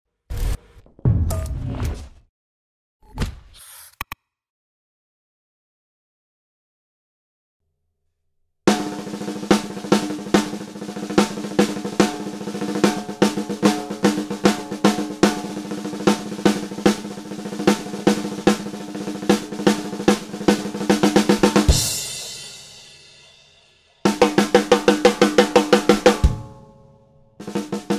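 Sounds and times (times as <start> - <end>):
snare drum strokes: 8.7 - 22.4, 24.1 - 26.3, 27.4 - 27.9
cymbal crash: 21.7 - 24.4.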